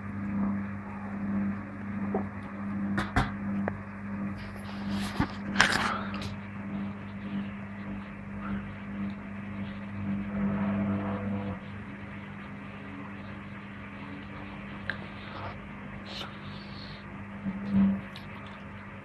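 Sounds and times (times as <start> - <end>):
washing machine spinning: 0.0 - 19.0.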